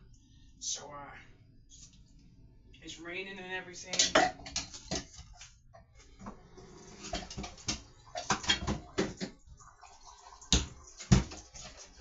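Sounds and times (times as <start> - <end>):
utensils and cookware clattering: 3.9 - 5.5, 6.6 - 9.3.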